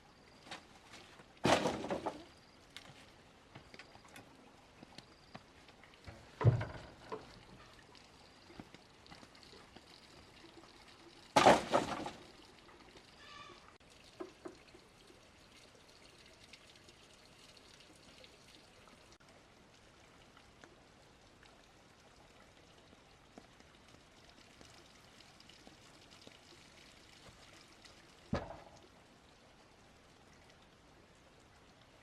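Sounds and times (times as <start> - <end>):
faint steady hiss: 0.0 - 32.0
small ticks and knocks: 2.0 - 10.8, 12.0 - 14.9.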